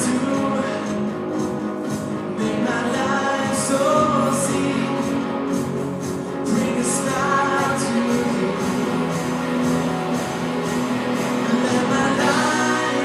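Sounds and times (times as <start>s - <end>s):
worship band playing: 0.0s - 13.0s
people singing: 6.5s - 9.3s, 11.3s - 13.0s.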